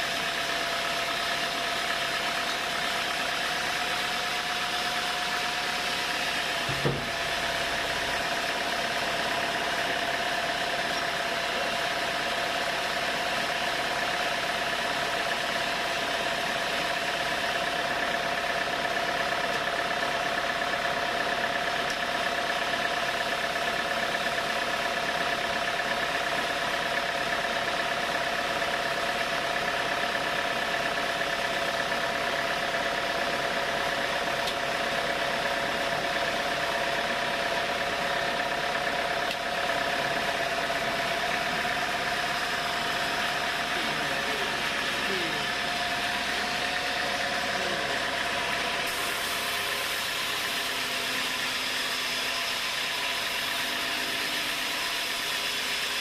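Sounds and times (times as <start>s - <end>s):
sawmill machinery running: 0.0s - 56.0s.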